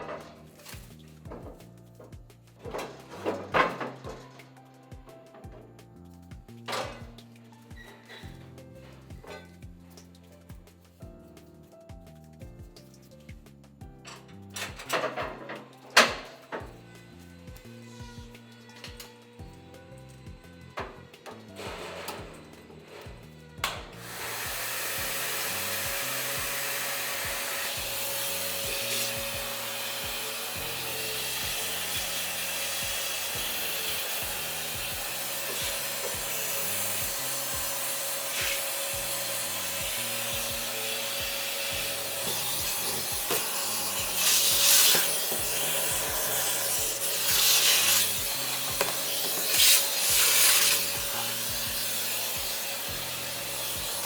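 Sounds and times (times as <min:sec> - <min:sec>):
background music with bass: 0:00.0 - 0:54.0
brush scraping and scrubbing: 0:20.6 - 0:54.0.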